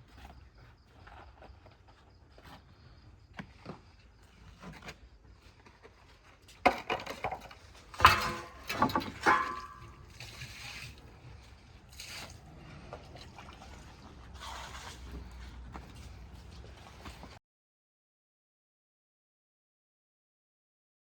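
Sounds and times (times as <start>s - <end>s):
loud knocks and clatter: 8.0s - 10.0s.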